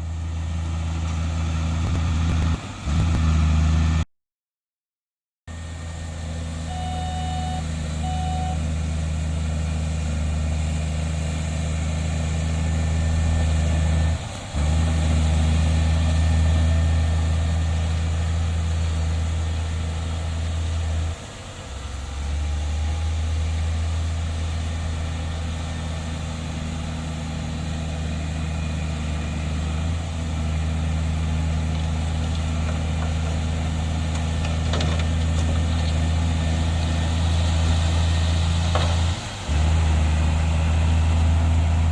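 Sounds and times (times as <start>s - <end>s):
diesel machinery engine drone: 0.0s - 4.0s, 5.5s - 41.9s
short beeps: 6.6s - 8.6s.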